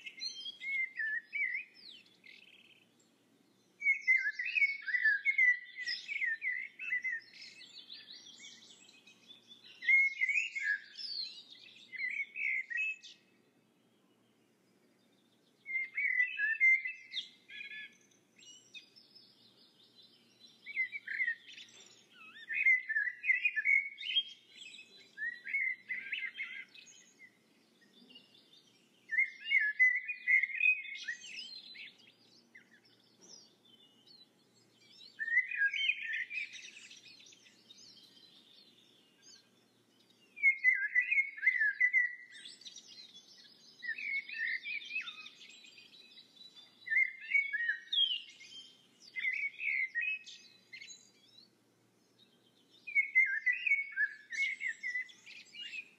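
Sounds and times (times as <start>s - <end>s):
songbird warbling: 52.9s - 55.9s.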